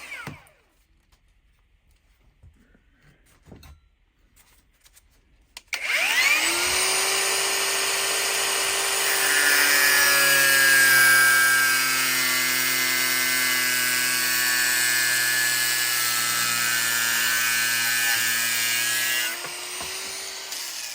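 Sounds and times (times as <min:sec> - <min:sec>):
angle grinder whining: 0:00.0 - 0:00.6, 0:05.7 - 0:20.9.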